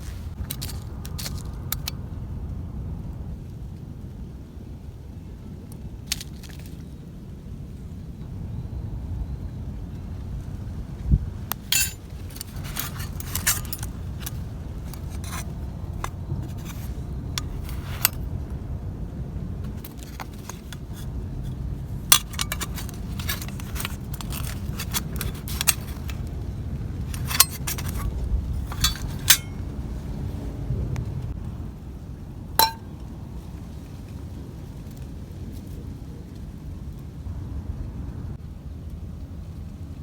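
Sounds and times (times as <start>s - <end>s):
metal gear clinking and scraping: 0.0s - 1.9s, 11.5s - 18.2s, 19.7s - 26.3s, 27.0s - 29.6s, 32.6s - 32.8s.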